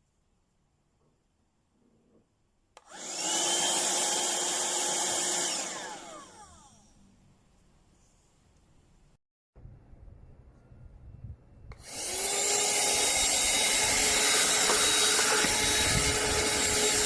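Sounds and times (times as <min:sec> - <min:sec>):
handheld vacuum cleaner motor running: 0:02.8 - 0:06.9, 0:11.7 - 0:17.0
motor spinning down whine: 0:02.9 - 0:07.0, 0:11.8 - 0:17.0.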